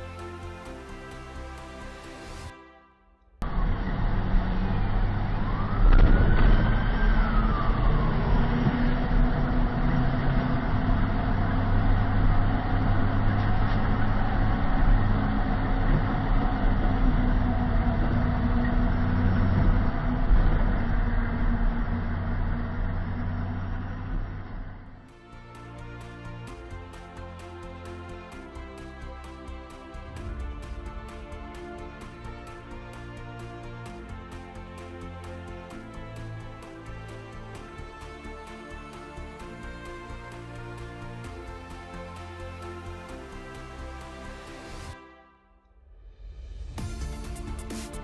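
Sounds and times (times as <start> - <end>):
vehicle engine and road noise: 3.4 - 26.2
siren wail: 3.5 - 10.3.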